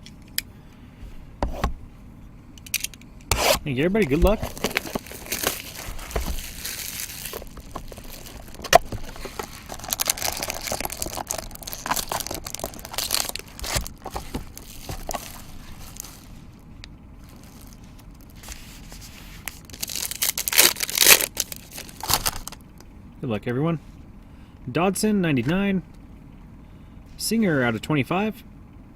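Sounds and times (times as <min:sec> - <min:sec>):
plastic packaging crinkling: 0:03.4 - 0:22.6.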